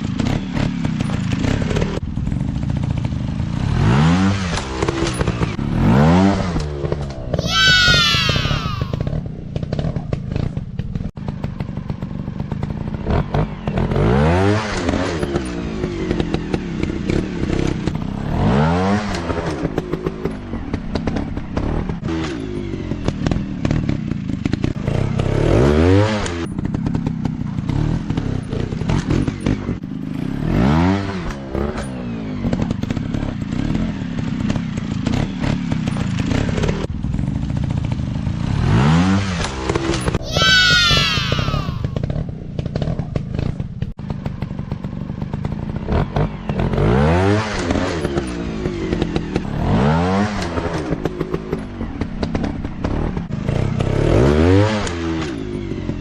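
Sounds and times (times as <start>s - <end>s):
dirt bike engine revving: 3.5s - 11.7s, 23.0s - 36.8s, 38.4s - 44.6s, 45.3s - 55.4s.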